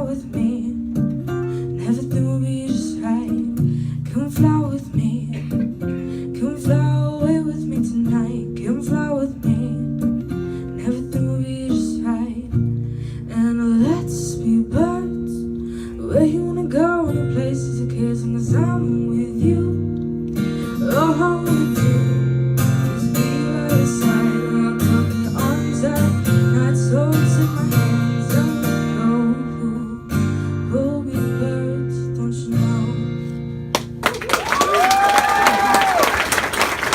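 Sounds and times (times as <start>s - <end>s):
acoustic guitar: 0.0s - 34.4s
person singing without words: 20.6s - 22.2s, 22.9s - 30.1s
audience applause: 33.8s - 36.9s
audience cheering: 34.0s - 36.9s.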